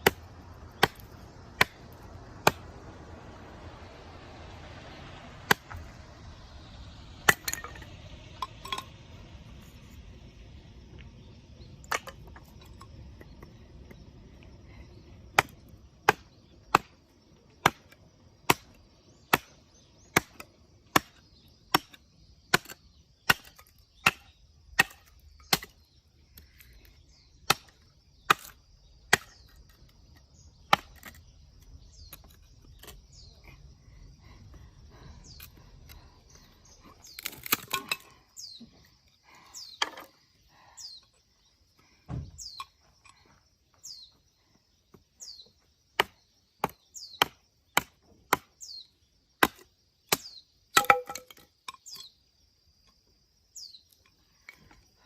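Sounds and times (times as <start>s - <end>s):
axe chopping wood: 0.0s - 2.7s, 5.5s - 5.8s, 7.2s - 7.9s, 11.8s - 12.4s, 15.3s - 17.0s, 17.6s - 25.8s, 27.4s - 29.6s, 30.6s - 31.2s, 37.1s - 38.0s, 46.0s - 48.8s, 49.4s - 51.4s.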